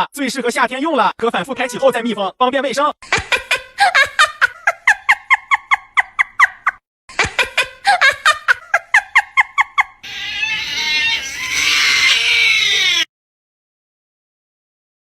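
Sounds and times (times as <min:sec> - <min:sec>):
harsh noisy cry: 0:10.0 - 0:13.1
squeaky animal calls: 0:10.0 - 0:13.1.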